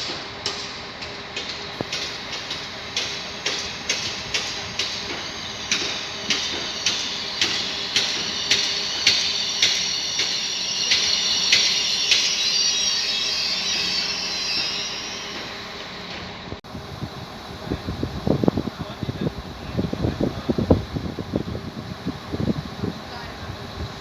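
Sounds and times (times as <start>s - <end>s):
train wheels clicking over joints: 0.0s - 16.6s
wheels squealing: 2.1s - 16.6s.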